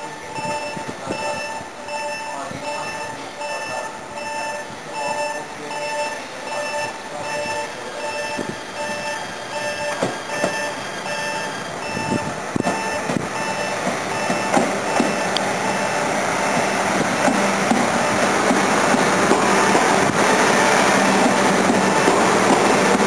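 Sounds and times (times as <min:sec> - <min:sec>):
railway warning signal beeps: 0:00.0 - 0:23.0
sharp knocks: 0:13.8 - 0:15.2.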